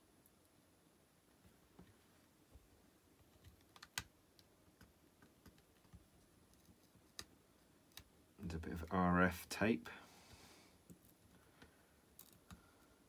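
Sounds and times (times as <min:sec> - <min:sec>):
small parts clicking: 0:12.2 - 0:12.8.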